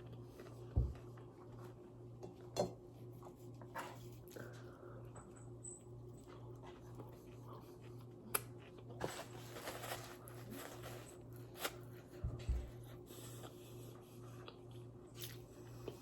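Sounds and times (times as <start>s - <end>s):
soft chewing: 0.0s - 16.0s
steady low hum: 0.0s - 16.0s
rustling: 8.9s - 12.1s.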